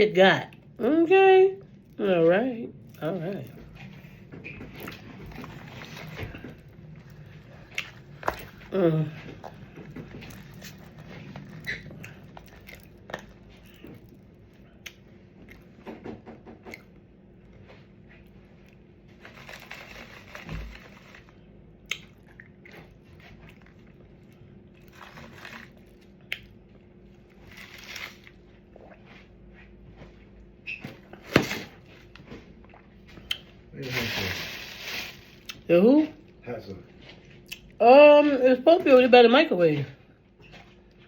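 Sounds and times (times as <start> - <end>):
person chewing: 2.8 - 15.7, 18.2 - 29.0.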